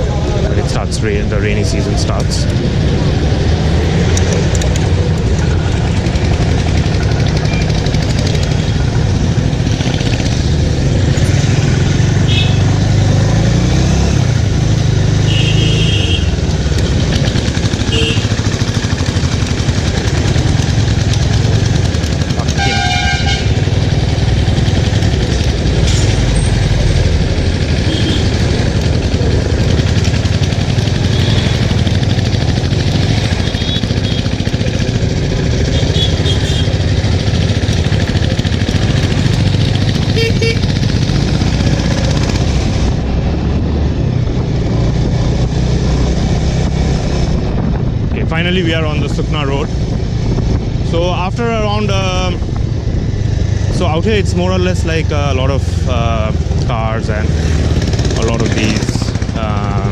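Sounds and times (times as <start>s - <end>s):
motorcycle engine running: 0.0s - 59.9s
vehicle horn honks: 12.3s - 12.7s, 15.3s - 16.4s, 17.9s - 18.4s, 22.5s - 23.6s, 27.9s - 28.4s, 35.7s - 36.7s, 40.1s - 40.6s
wind on microphone: 42.0s - 53.6s.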